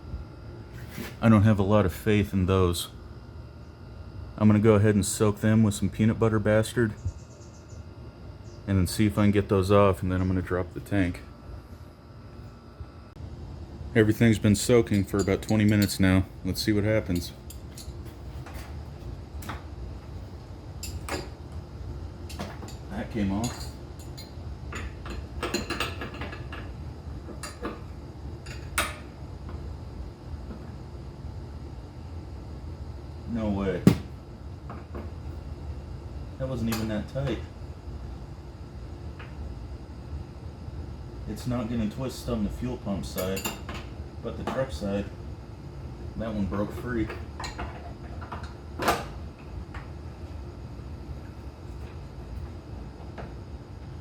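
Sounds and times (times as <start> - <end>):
metal tools clinking: 14.8 - 16.1
wrench clanking against metal: 14.8 - 16.1.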